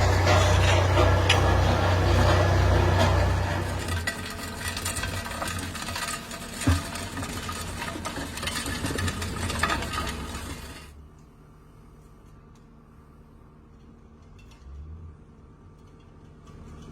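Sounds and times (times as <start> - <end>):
machinery running: 0.0 - 11.0
scraping: 0.0 - 11.0.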